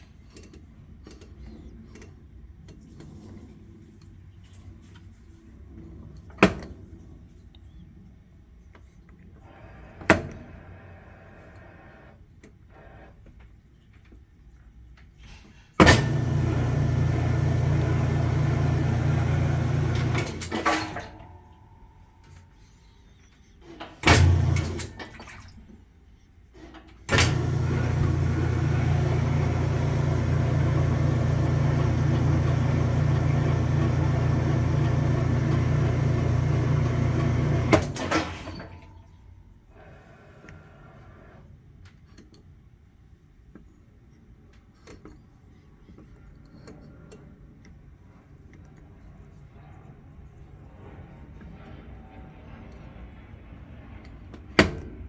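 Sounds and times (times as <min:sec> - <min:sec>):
washing machine switch click: 0:15.8 - 0:20.7, 0:24.0 - 0:25.1, 0:27.1 - 0:38.7
washing machine humming: 0:15.8 - 0:22.5, 0:23.8 - 0:25.9, 0:27.0 - 0:39.2.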